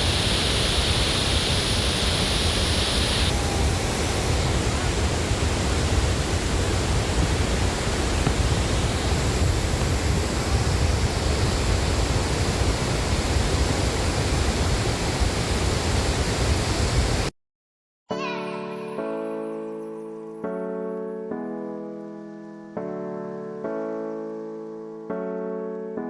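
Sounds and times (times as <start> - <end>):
waterfall roaring: 0.0 - 17.3.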